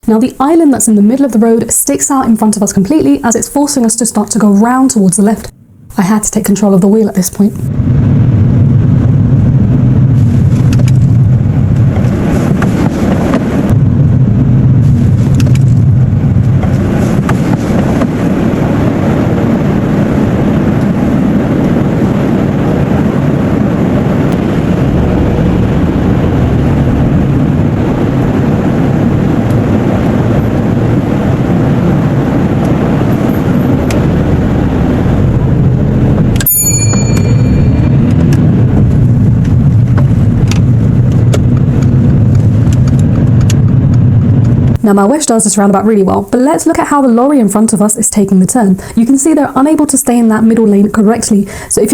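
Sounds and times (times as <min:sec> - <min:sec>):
sharp click with bright ring: 0:36.4 - 0:37.9.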